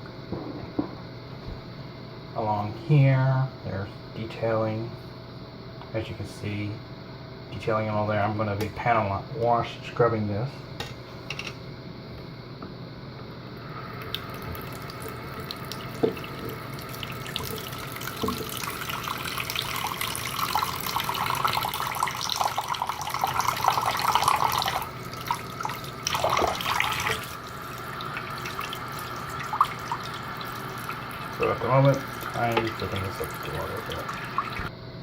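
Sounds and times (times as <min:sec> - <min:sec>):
tap running into sink: 0:14.0 - 0:19.7, 0:25.6 - 0:27.3, 0:28.2 - 0:34.7.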